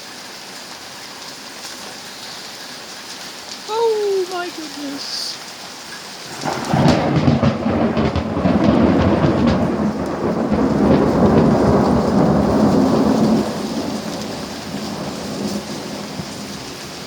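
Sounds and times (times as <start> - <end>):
steady rain: 0.0 - 17.0
rumbling thunder: 6.2 - 17.0.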